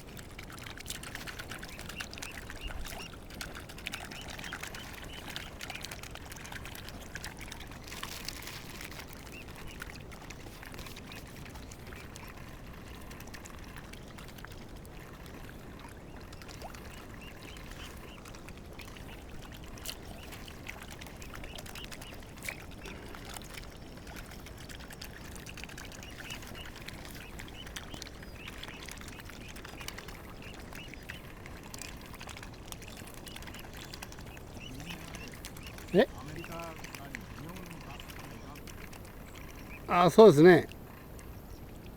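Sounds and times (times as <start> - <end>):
small splashes: 0.0 - 41.9
water lapping and trickling: 0.0 - 41.9
swans calling: 14.9 - 41.7.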